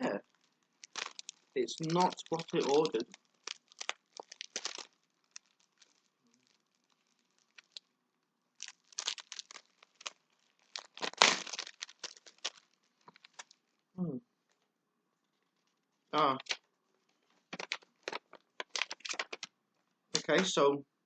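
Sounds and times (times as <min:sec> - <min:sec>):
packaging crinkling and tearing: 0:00.2 - 0:07.9, 0:08.6 - 0:13.8, 0:15.6 - 0:19.5.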